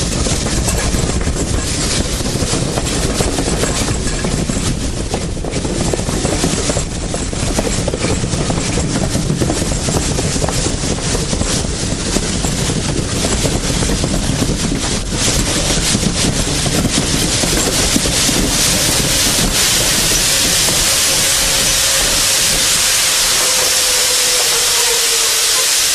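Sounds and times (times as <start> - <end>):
wind buffeting microphone: 0.0 - 25.4
steam train rumbling: 0.0 - 25.9
steam hissing: 14.8 - 25.9.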